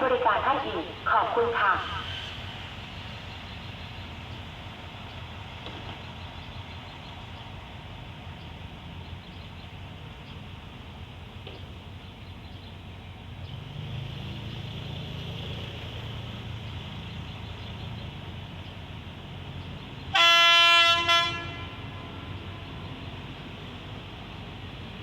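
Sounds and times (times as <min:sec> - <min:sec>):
locomotive engine rumble: 0:00.0 - 0:25.0
locomotive horn blasts: 0:20.1 - 0:23.0.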